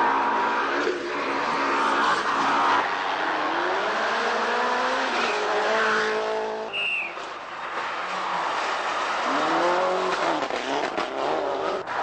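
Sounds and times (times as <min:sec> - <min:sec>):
rally car engine revving: 0:08.5 - 0:12.0.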